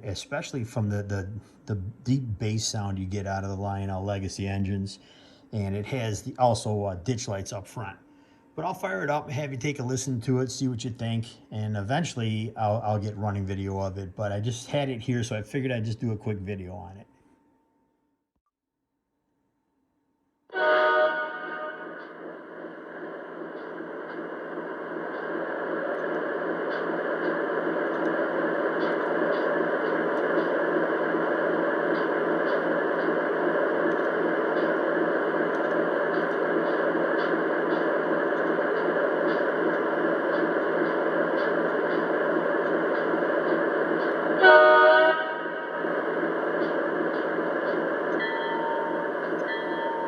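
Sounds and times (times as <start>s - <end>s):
short horn blast: 20.5s - 21.9s, 44.4s - 45.6s
model locomotive diesel engine: 20.6s - 50.0s.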